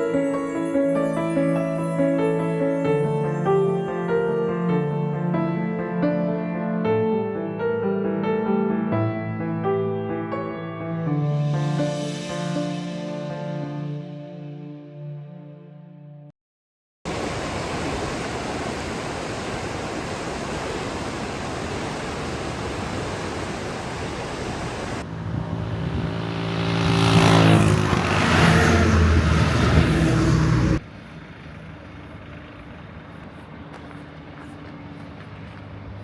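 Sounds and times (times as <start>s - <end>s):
steady rushing noise: 17.1s - 30.8s
vehicle engine passing by: 24.6s - 36.0s.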